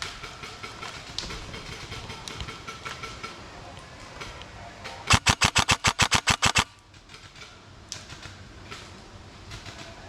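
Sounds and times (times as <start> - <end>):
airsoft rifle firing: 5.1 - 6.8.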